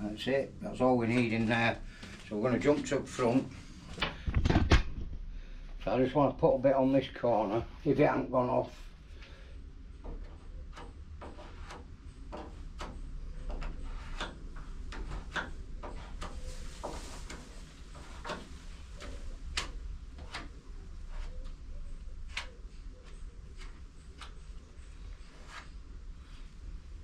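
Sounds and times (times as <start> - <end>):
steady low hum: 0.0 - 27.0
filler spreader scraping panel: 10.0 - 21.5.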